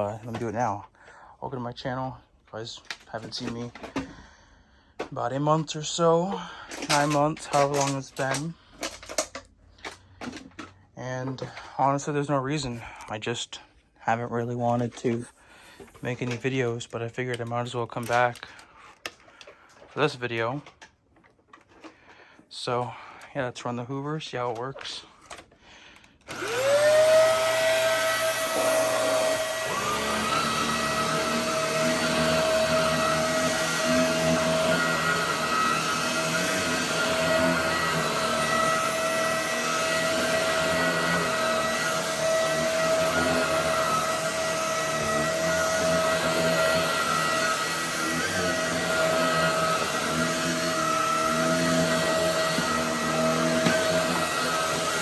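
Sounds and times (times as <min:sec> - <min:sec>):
vacuum cleaner motor whine: 0:06.7 - 0:09.2, 0:26.3 - 0:55.0.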